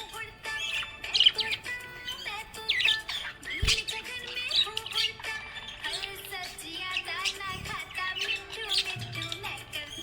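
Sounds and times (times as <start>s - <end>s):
budgerigar chirping: 0.0s - 10.0s.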